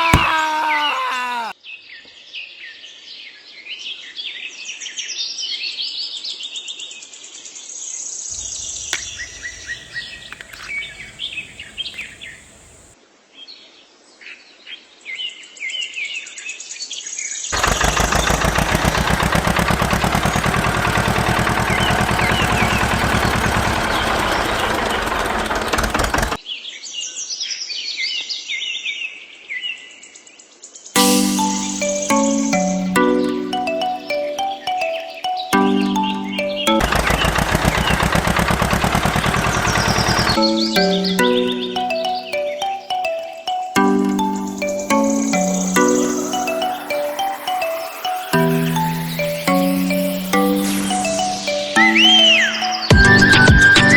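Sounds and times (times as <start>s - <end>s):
songbirds chirping and singing: 8.4s - 12.9s, 39.2s - 53.9s
loud fast rattling noise: 17.6s - 26.4s, 36.8s - 40.4s.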